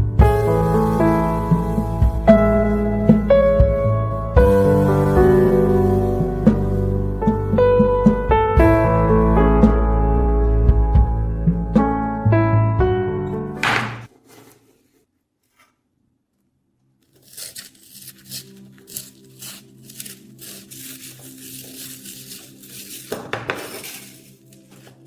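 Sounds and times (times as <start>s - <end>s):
piano music: 0.0s - 14.1s
knife scraping and rubbing: 17.0s - 25.0s.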